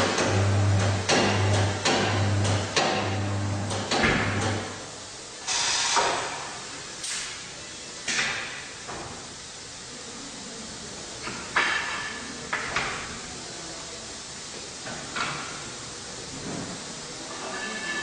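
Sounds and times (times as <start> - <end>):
machine motor humming: 0.0 - 4.5
metal clanks and scrapes: 17.3 - 18.0.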